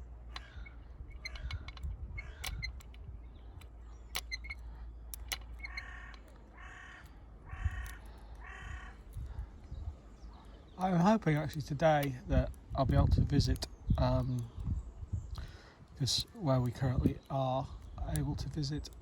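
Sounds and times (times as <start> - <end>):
large bird calling: 0.0 - 11.4
wind rumble on microphone: 0.0 - 19.0
lock picks clicking in padlock: 1.2 - 6.4.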